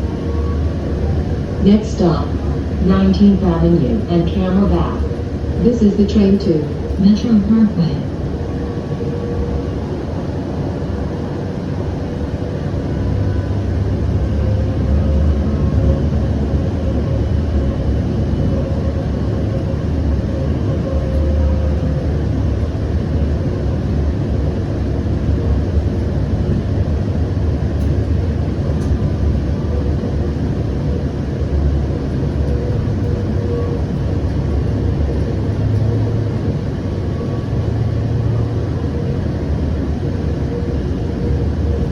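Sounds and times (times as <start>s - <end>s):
faint steady hum: 0.0s - 9.2s
train wheels rumbling: 0.0s - 41.9s.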